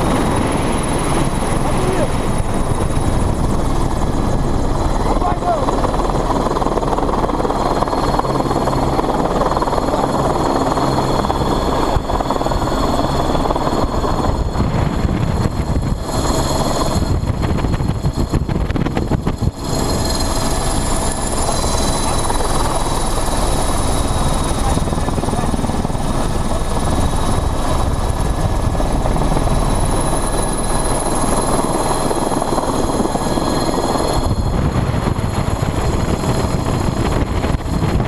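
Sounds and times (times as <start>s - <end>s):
helicopter rotor and engine noise: 0.0s - 38.0s
high-pitched whine: 9.2s - 38.0s.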